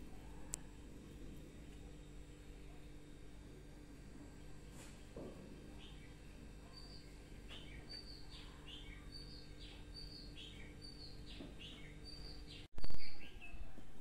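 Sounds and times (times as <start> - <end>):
small bird chirping faintly: 5.7 - 14.0.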